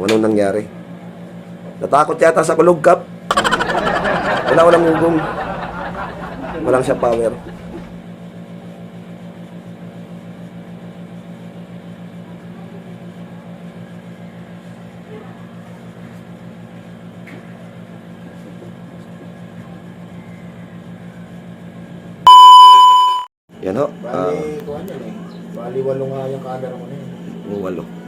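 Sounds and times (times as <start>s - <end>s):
electronic beep: 22.3s - 23.3s.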